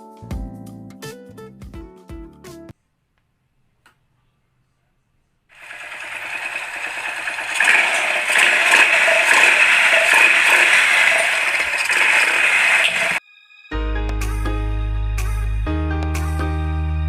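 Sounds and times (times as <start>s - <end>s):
fast mechanical rattling: 5.6s - 13.2s.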